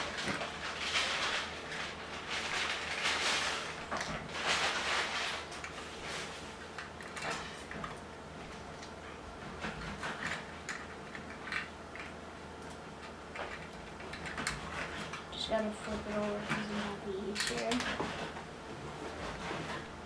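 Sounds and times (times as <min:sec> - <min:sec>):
rummaging through plastic parts: 0:00.0 - 0:08.0, 0:13.0 - 0:20.0
plastic parts clicking: 0:17.4 - 0:17.9.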